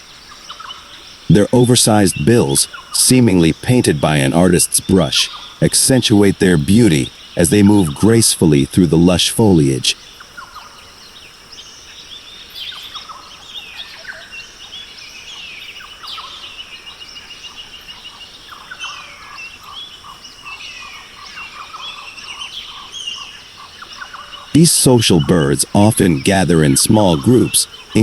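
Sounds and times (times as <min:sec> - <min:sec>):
many birds calling and chirping: 0:00.0 - 0:28.0
steady high hum: 0:01.3 - 0:10.0, 0:24.6 - 0:28.0.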